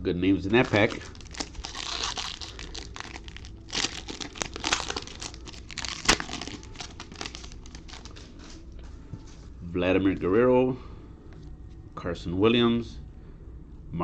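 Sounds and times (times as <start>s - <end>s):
wrapper crinkling: 0.4s - 8.8s
foil pack tearing: 0.5s - 8.5s.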